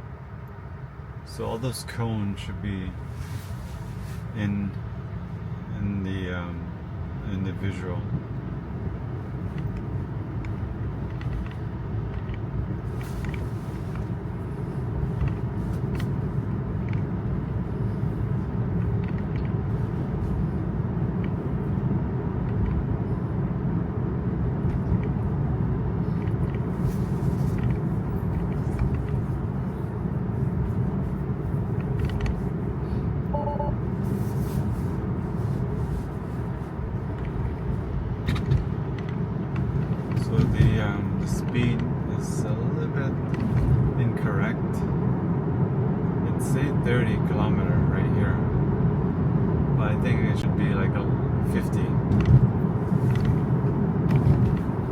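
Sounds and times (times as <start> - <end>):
tyre and road rumble: 7.7 - 54.9
two-note beep: 33.3 - 33.8.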